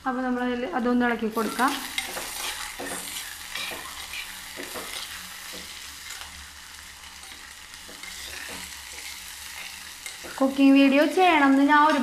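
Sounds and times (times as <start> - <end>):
vegetables sizzling in hot oil: 0.0 - 12.0
metal spoon scraping a pot: 1.4 - 5.2.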